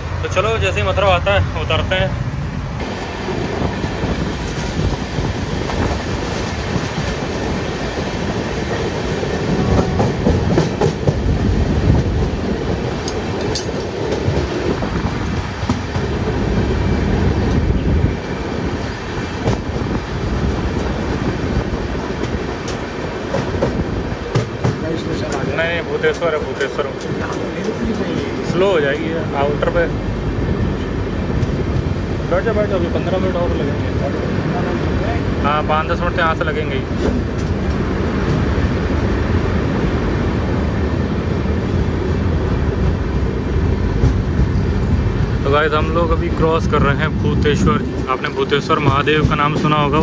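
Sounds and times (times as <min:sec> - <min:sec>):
train running rumble: 0:00.0 - 0:50.0
wheels clattering over rail joints: 0:04.4 - 0:16.8, 0:19.4 - 0:29.2.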